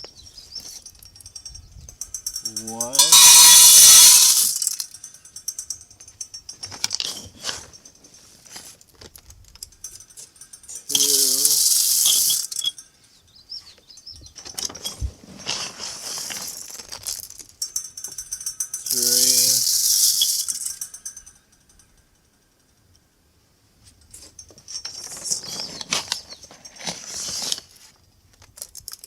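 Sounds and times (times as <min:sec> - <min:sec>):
seed and scoop rustles and clicks: 0:02.4 - 0:05.0, 0:10.8 - 0:12.8, 0:14.6 - 0:21.3
seeds pouring with rattle: 0:02.5 - 0:04.9, 0:10.9 - 0:12.7, 0:15.4 - 0:17.4, 0:18.8 - 0:21.0.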